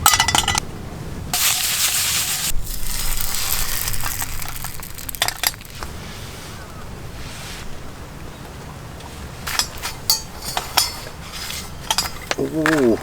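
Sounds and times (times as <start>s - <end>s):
cooking gear clinking: 0.0s - 0.6s, 1.4s - 5.9s, 9.4s - 13.0s
loud hiss: 1.4s - 6.6s.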